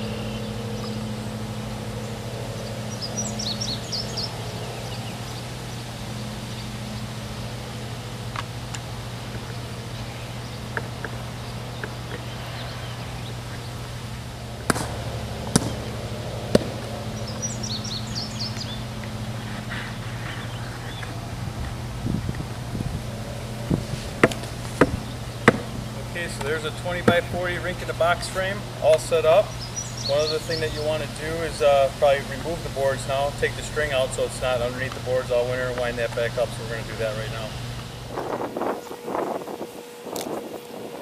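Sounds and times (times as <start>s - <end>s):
bird chirps: 0.0s - 7.2s, 9.2s - 14.2s, 15.2s - 21.2s, 29.3s - 31.1s
steady low hum: 0.0s - 41.0s
sharp knocks: 14.6s - 17.0s, 24.2s - 25.8s.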